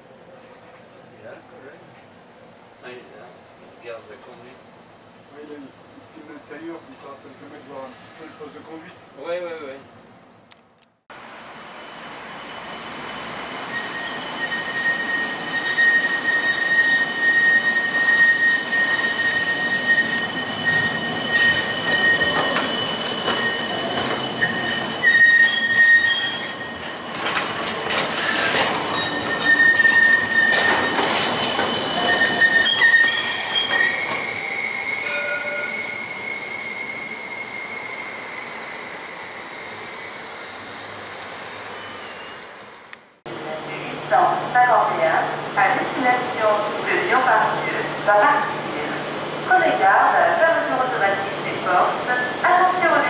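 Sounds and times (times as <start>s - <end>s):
tram wheels squealing on rails: 11.2s - 42.9s.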